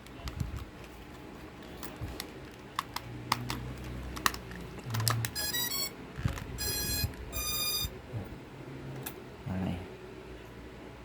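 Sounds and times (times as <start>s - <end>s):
electronic beep tones: 5.4s - 5.9s, 6.6s - 7.9s.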